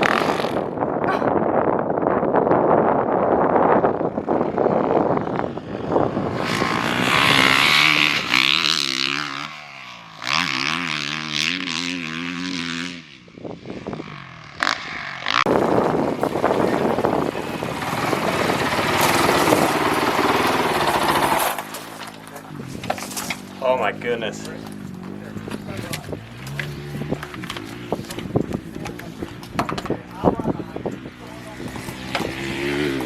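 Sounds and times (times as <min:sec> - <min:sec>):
motocross bike engine revving: 0:00.0 - 0:01.0, 0:03.4 - 0:33.0
wind rushing: 0:00.0 - 0:09.2, 0:15.4 - 0:21.8.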